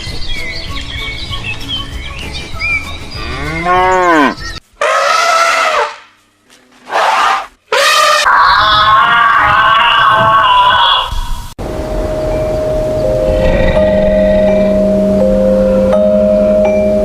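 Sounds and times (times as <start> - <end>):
cattle mooing: 3.2 - 4.4, 13.2 - 14.8.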